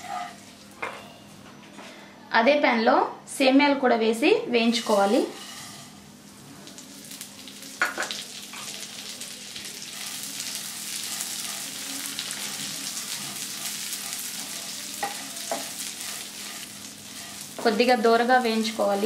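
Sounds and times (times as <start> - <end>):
vermicelli sizzling in a pan: 0.0 - 1.4, 4.0 - 19.0.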